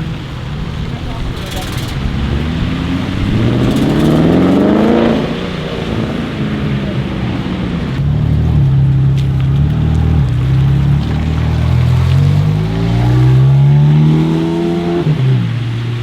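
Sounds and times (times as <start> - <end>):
engine holding steady note: 0.0 - 12.8
car engine accelerating hard: 0.0 - 16.0.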